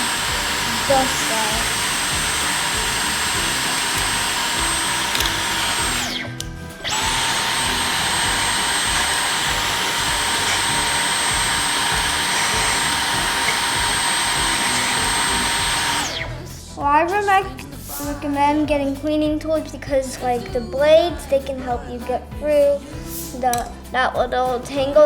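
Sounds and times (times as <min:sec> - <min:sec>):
vacuum cleaner whine: 0:00.0 - 0:16.4
vacuum motor spinning down: 0:00.0 - 0:16.5.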